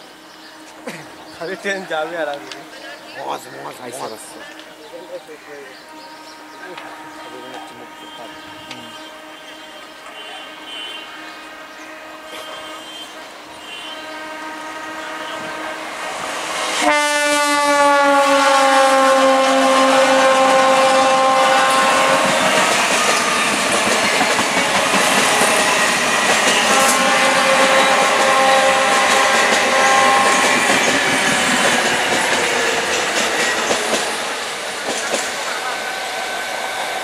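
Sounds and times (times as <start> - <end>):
train horn: 4.7 - 34.4, 35.4 - 37.0
train wheels rumbling and clattering: 19.3 - 36.4.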